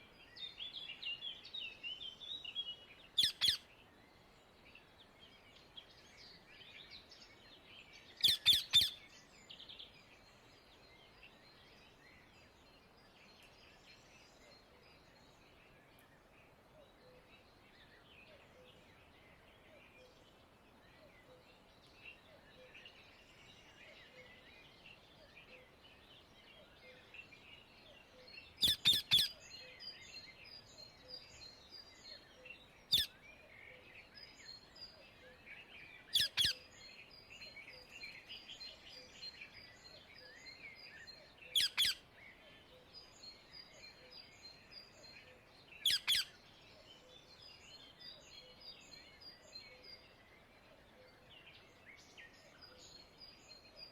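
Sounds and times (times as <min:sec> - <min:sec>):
small birds chirping: 0:00.0 - 0:53.9
parakeet shrill calls: 0:36.2 - 0:36.6, 0:41.6 - 0:42.0.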